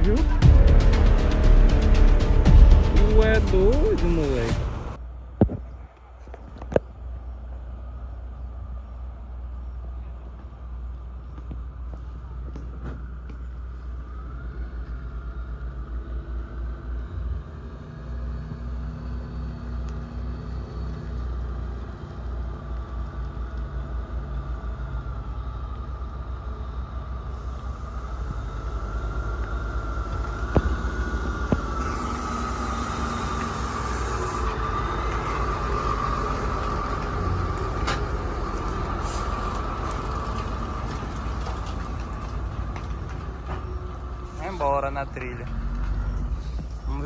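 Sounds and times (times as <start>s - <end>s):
high-pitched hum: 0.0s - 5.0s, 27.3s - 36.6s
vehicle engine rumbling: 0.0s - 47.0s.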